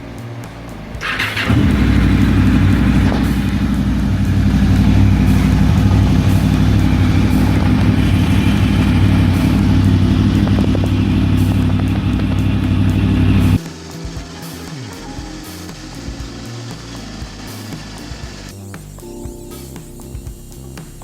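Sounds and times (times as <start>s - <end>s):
vehicle engine droning steadily: 0.0s - 15.2s.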